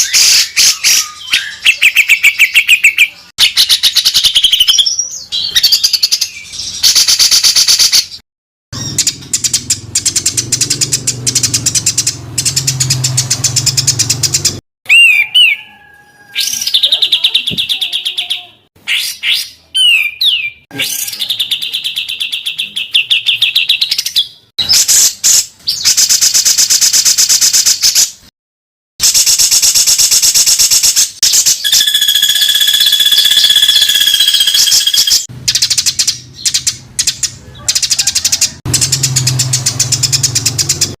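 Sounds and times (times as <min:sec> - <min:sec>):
songbird chattering trills: 0:31.3 - 0:38.0.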